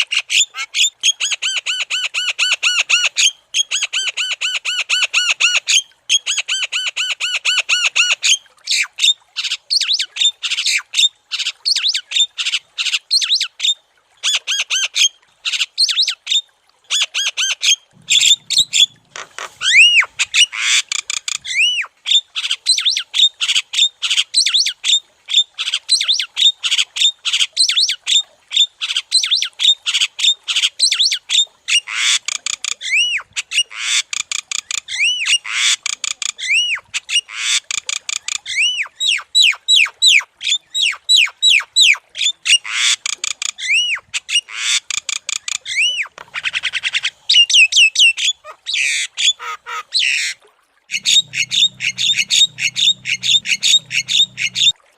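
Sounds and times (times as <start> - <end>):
bird singing with chatter and whistles: 50.9 - 54.7.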